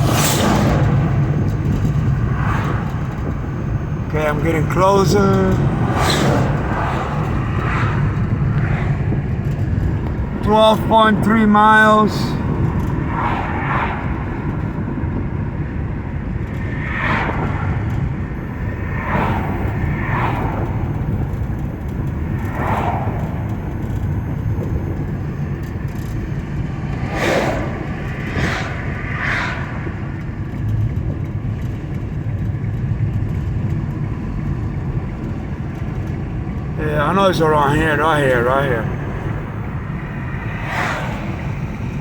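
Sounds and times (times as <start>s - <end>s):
passing whooshes: 0.0s - 10.4s, 12.1s - 31.1s, 39.0s - 42.0s
car road and engine rumble: 0.0s - 42.0s.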